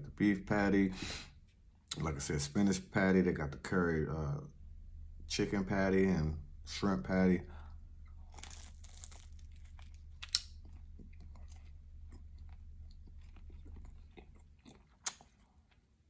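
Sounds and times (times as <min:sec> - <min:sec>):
man chewing food: 0:07.9 - 0:16.0.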